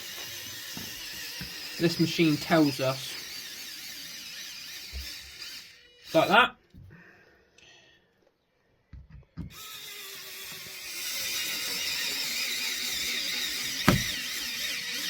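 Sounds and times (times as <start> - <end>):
electric screwdriver whirring: 0.0 - 6.4, 9.5 - 15.0
screwdriver bit knocking: 12.9 - 15.0.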